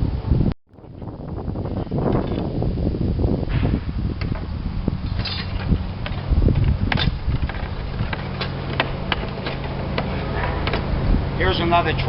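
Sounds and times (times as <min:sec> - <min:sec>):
low engine-like hum: 0:03.9 - 0:12.0
slates and roofing tools clicking: 0:05.1 - 0:11.0.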